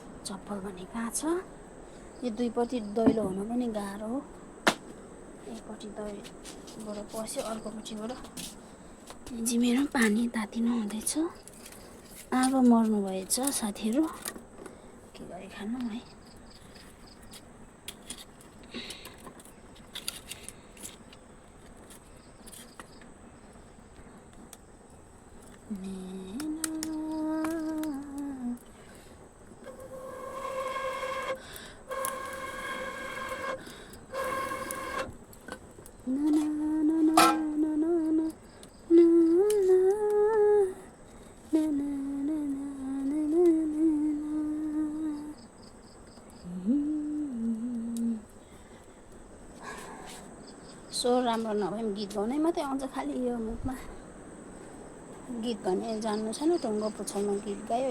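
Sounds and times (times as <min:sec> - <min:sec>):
low background hiss: 0:00.0 - 0:57.9
woman humming: 0:25.7 - 0:28.6, 0:36.1 - 0:38.3, 0:38.9 - 0:40.8, 0:41.5 - 0:45.4, 0:46.4 - 0:48.3.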